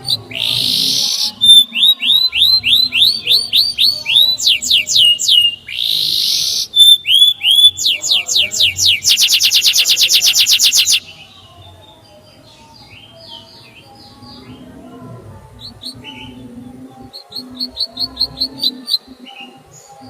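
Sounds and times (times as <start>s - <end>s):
canary singing: 0.0s - 20.0s.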